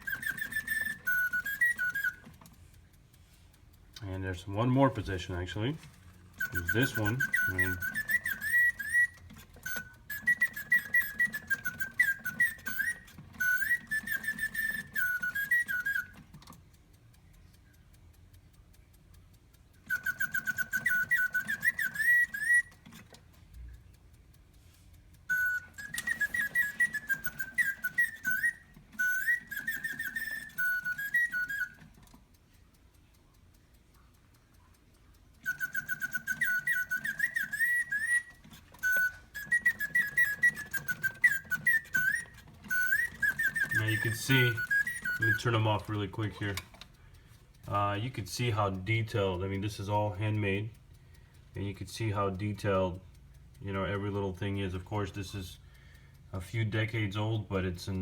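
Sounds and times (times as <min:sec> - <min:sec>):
mechanical birdsong whistle: 0:00.0 - 0:02.5, 0:04.1 - 0:16.5, 0:19.7 - 0:23.2, 0:25.2 - 0:32.1, 0:35.3 - 0:55.9
faint mechanism whir: 0:00.0 - 0:58.0.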